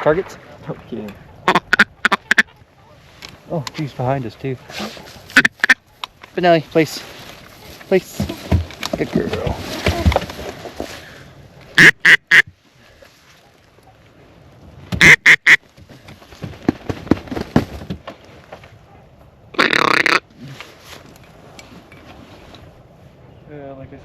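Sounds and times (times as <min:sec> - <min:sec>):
duck call quacks: 0:01.4 - 0:02.5, 0:05.4 - 0:05.8, 0:11.8 - 0:12.5, 0:15.0 - 0:15.6, 0:19.6 - 0:20.2.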